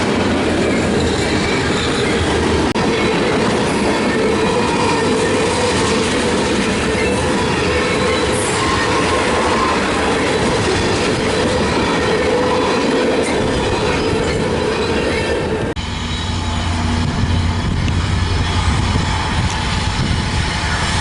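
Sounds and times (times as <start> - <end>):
railroad cars rumbling past: 0.0 - 21.0
thin wheel squeal: 15.8 - 20.9.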